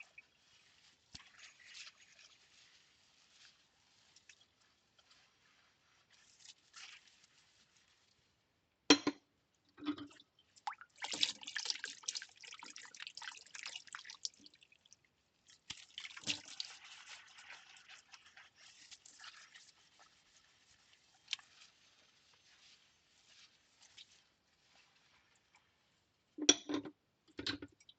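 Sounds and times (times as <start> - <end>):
water splashing in sink: 9.8 - 21.9.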